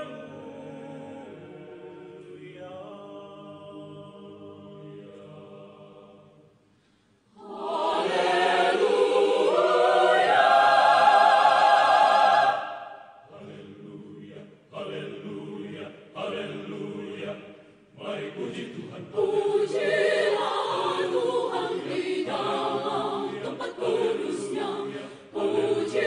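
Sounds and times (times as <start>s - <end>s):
choir singing: 0.0s - 6.5s, 7.3s - 26.0s.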